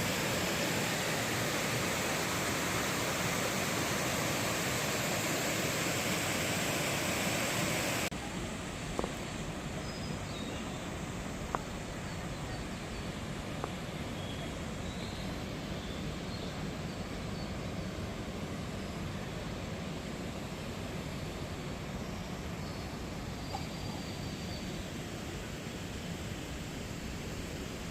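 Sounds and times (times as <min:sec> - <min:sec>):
mountain stream rushing: 0:00.0 - 0:27.9
faint high chirps: 0:22.0 - 0:24.9.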